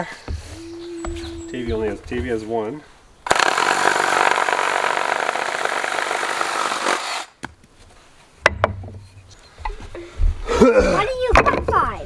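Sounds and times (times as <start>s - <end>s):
power tool cutting wood: 3.3s - 7.3s.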